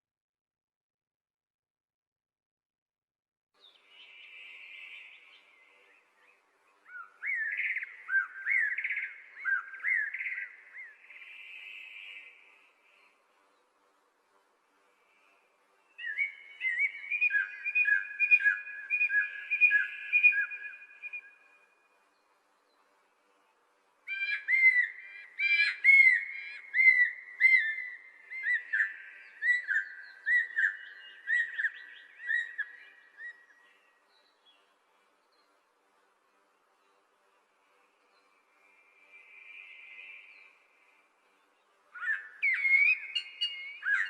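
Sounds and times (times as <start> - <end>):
songbird whistling: 6.9 - 12.4, 16.0 - 21.5, 24.1 - 33.8, 41.9 - 44.0.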